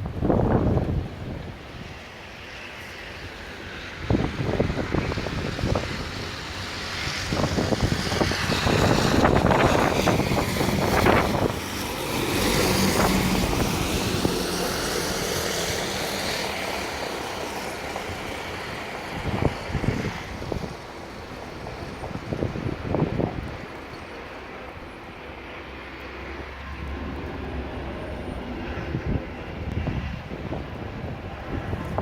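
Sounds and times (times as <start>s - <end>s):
wind buffeting microphone: 0.0s - 2.2s, 3.1s - 32.0s
motor vehicle passing: 4.2s - 21.1s.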